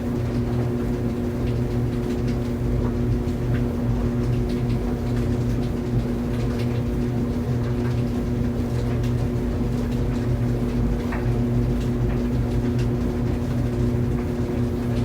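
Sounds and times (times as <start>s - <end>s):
tumble dryer running: 11.6s - 15.0s.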